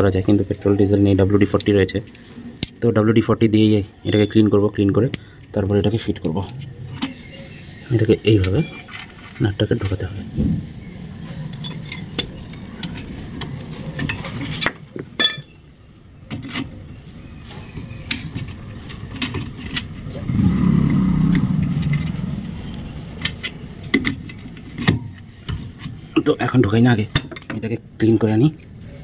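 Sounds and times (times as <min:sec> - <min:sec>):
low rumble: 0:20.0 - 0:23.2.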